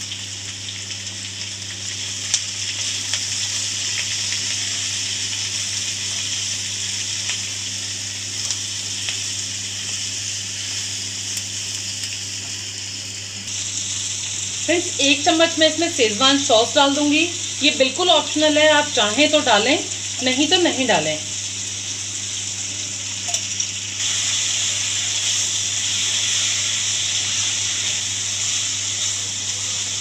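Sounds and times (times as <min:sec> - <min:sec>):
vegetables sizzling in hot oil: 0:00.0 - 0:30.0.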